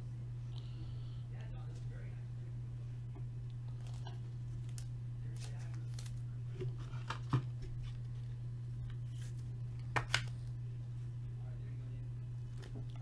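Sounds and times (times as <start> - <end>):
low hum: 0.0 - 13.0
cards and packaging rustling: 3.8 - 10.6.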